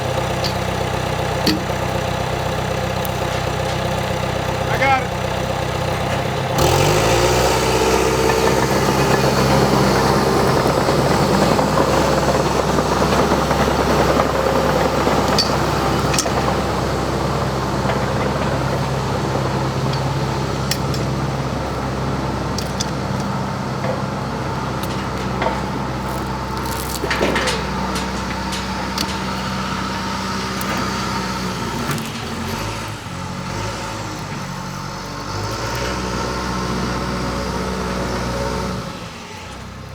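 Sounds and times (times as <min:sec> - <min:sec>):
engine revving and running: 0:00.0 - 0:39.9
faint clanks: 0:00.2 - 0:06.4, 0:22.6 - 0:33.1.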